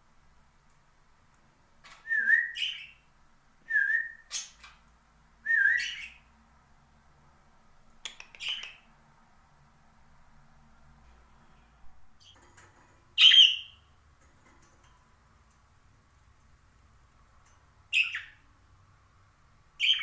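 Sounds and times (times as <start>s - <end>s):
parakeet whistled calls: 1.9s - 3.0s, 5.5s - 6.2s, 13.2s - 13.8s, 17.9s - 18.4s, 19.8s - 20.0s.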